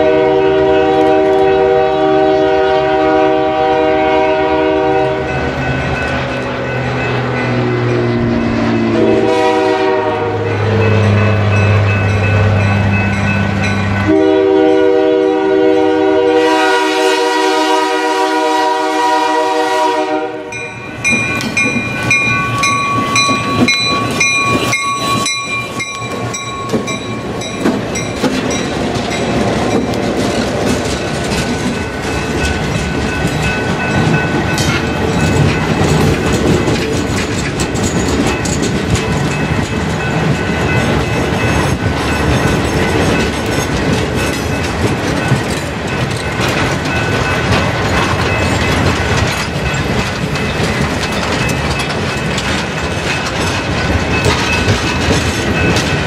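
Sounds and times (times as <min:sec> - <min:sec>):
locomotive air horn: 0:00.0 - 0:05.3, 0:08.9 - 0:10.6, 0:14.0 - 0:20.6
train wheels clattering: 0:16.4 - 0:56.0.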